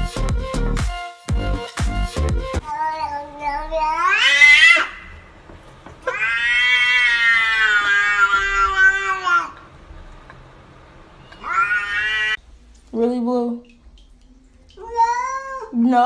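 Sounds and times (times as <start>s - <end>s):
cat meowing: 2.6s - 5.2s, 6.0s - 9.6s, 11.2s - 12.4s.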